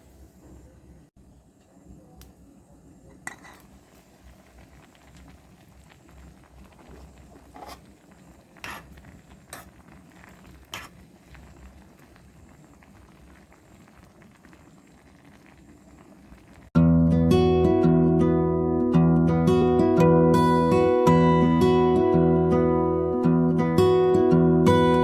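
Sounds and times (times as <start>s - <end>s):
faint background noise: 0.0s - 25.0s.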